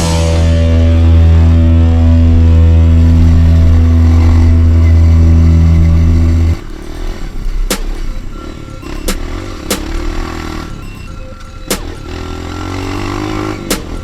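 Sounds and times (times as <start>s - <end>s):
dirt bike engine at low revs: 0.0s - 10.8s, 11.8s - 14.0s
loud low drone: 0.0s - 14.0s
sharp click: 7.7s - 8.2s, 11.7s - 12.0s, 13.7s - 14.0s.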